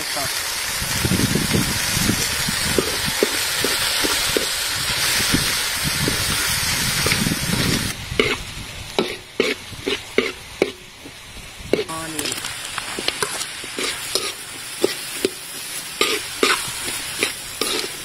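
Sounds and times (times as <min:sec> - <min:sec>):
food sizzling in a pan: 0:00.0 - 0:18.0
metal ladle scraping a pan: 0:07.0 - 0:08.4, 0:09.0 - 0:10.8, 0:11.7 - 0:18.0.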